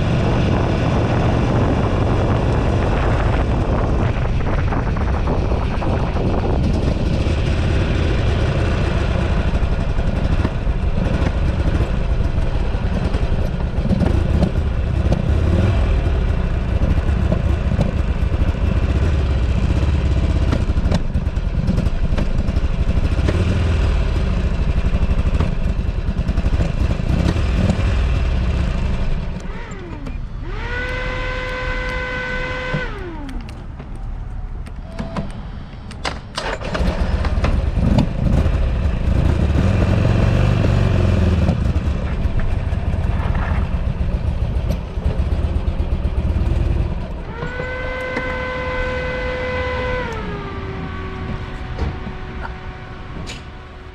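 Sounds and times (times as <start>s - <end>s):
steady whine: 0.0s - 13.9s, 28.0s - 36.9s, 41.1s - 53.9s
motorcycle engine running: 0.0s - 34.6s, 36.5s - 53.9s
wind noise on microphone: 0.0s - 53.9s.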